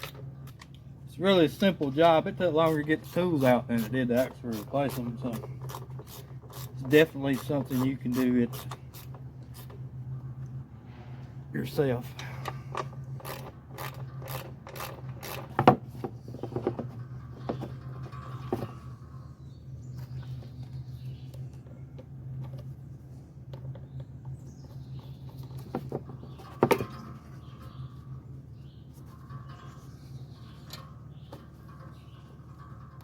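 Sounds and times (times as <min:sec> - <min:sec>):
steady low hum: 0:00.0 - 0:33.0
hand tools clicking and knocking: 0:12.2 - 0:18.8.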